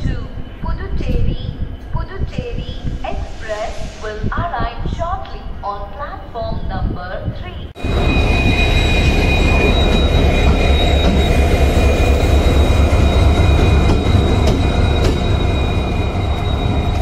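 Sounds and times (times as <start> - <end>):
train rumbling on track: 0.0 - 5.7, 7.6 - 17.0
high wheel squeal: 7.8 - 17.0.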